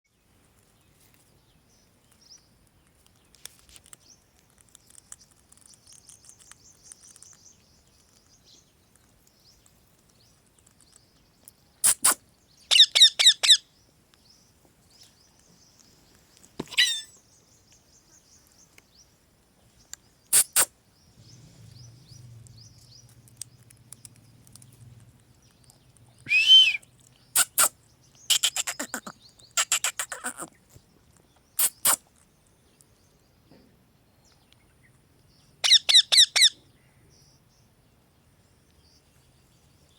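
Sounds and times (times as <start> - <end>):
faint high chirping: 0.9 - 33.4
parrot screeching: 16.7 - 17.1.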